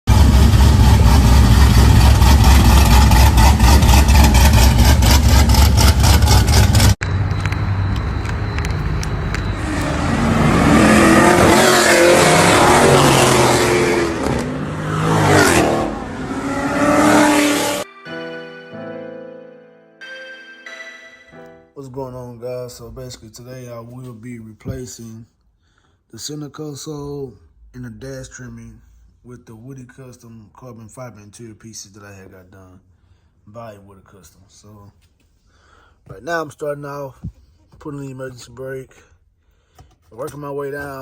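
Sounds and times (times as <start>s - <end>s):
car engine revving: 0.1s - 17.8s.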